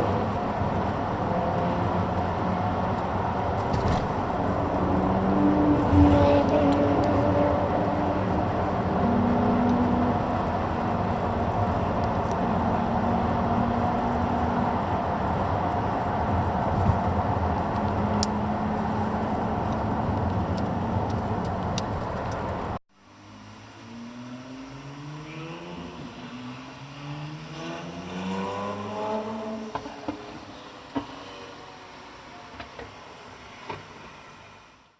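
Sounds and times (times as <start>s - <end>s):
engine accelerating: 0.0s - 22.8s
race car engines running hard: 0.0s - 22.8s.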